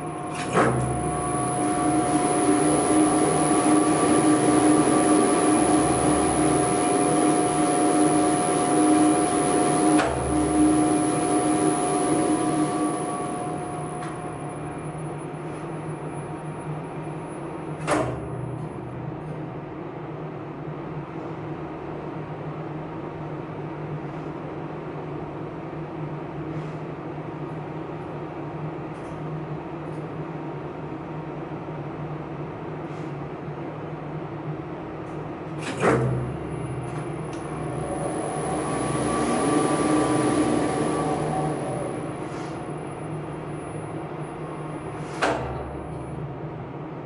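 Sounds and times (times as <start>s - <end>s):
machinery humming: 0.0s - 47.0s.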